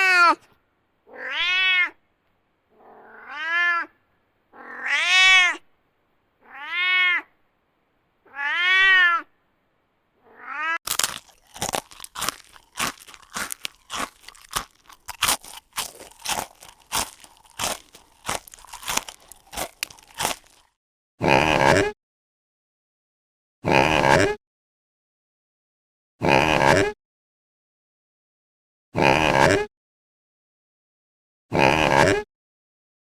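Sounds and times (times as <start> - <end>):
cat meowing: 0.0 - 0.4, 1.1 - 2.0, 2.8 - 3.9, 4.6 - 5.6, 6.4 - 7.3, 8.3 - 9.3, 10.2 - 10.8
sharp crunching clicks: 10.8 - 20.7.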